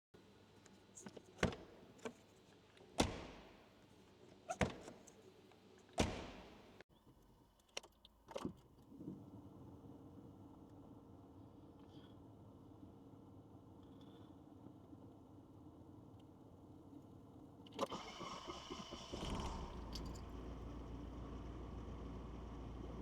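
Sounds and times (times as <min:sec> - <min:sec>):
knocks and clicks inside car: 0:03.0 - 0:03.6, 0:06.0 - 0:06.7
car doors shutting: 0:06.0 - 0:06.7
engine idling hum: 0:18.0 - 0:23.0.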